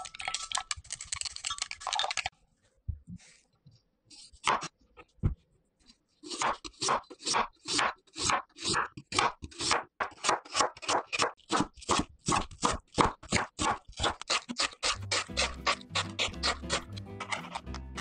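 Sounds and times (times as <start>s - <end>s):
knife chopping on wooden board: 6.3s - 18.0s
background music: 15.0s - 18.0s.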